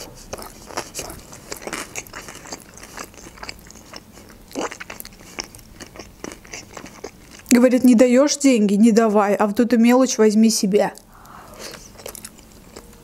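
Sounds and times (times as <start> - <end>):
person chewing food: 0.0 - 7.5, 11.0 - 13.0.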